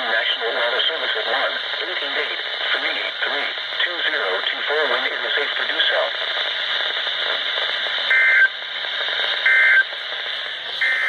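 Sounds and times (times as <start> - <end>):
radio static hiss: 0.0 - 11.0
buzzy two-tone data bursts: 9.4 - 11.0.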